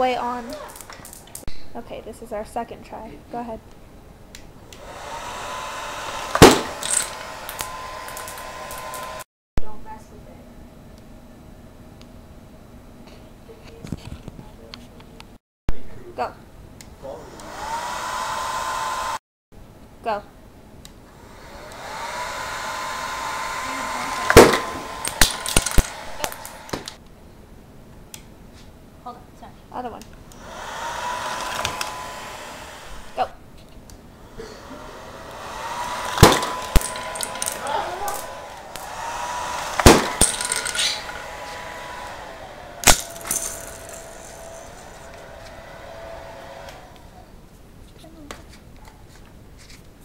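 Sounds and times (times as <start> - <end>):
hair dryer blowing: 0.0 - 1.2, 4.6 - 9.3, 17.0 - 19.2, 21.0 - 27.0, 30.2 - 33.4, 34.2 - 47.5
sharp clacks of contraption parts: 6.3 - 9.0, 24.3 - 27.0, 39.8 - 41.0, 42.8 - 44.4
loud sharp clack: 36.1 - 37.6, 39.7 - 41.2.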